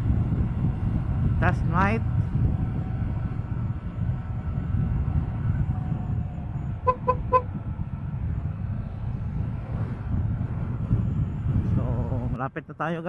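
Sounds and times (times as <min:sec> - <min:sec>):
wind on camera mic: 0:00.0 - 0:12.4
road rumble: 0:00.0 - 0:13.0
vehicle horn toots: 0:06.8 - 0:07.5.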